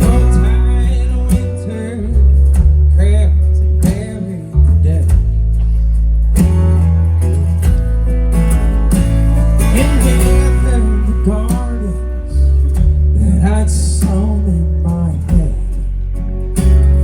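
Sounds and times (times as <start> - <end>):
drums: 0.0 - 17.0
heavy low end: 0.0 - 17.0
strummed acoustic guitar: 0.0 - 17.0.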